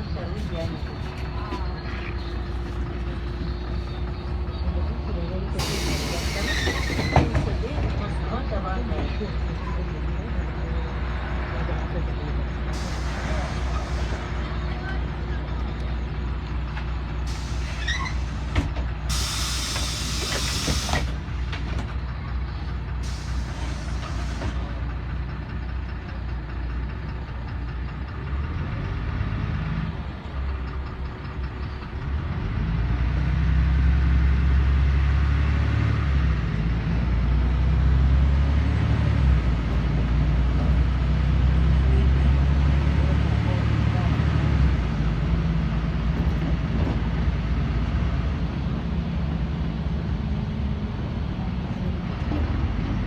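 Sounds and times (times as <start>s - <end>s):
bus diesel engine drone: 0.0s - 53.0s
compressed-air hiss: 5.6s - 7.0s, 19.1s - 21.1s.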